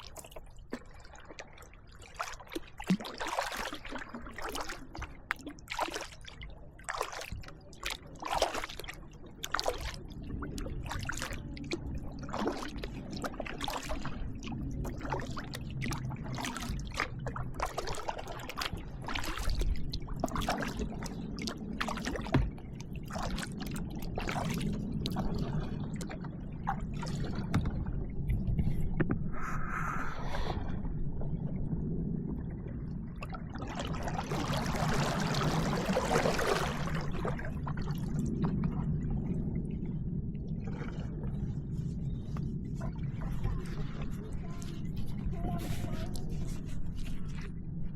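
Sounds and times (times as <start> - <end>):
kayak paddles splashing: 0.0 - 28.8, 33.2 - 39.0
water trickling off paddles: 0.0 - 29.3, 31.2 - 47.9
steady low rumble: 9.0 - 47.9.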